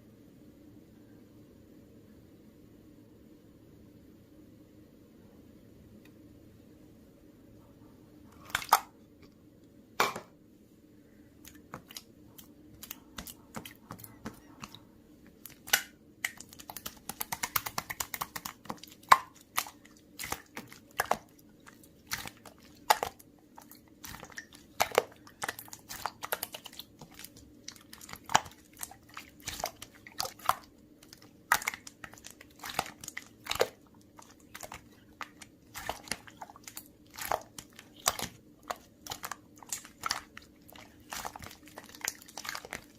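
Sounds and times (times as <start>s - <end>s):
slime crackling and popping: 15.4s - 42.9s.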